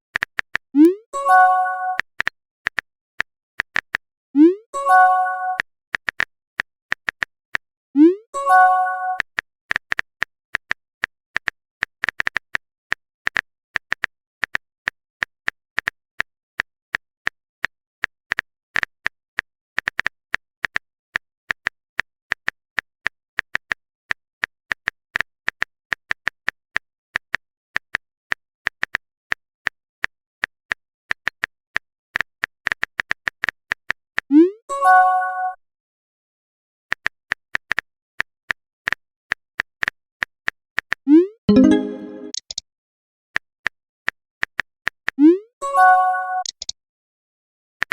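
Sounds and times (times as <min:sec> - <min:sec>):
brief chime: 0:41.5 - 0:42.4
phone keyboard typing clicks: 0:46.4 - 0:46.8.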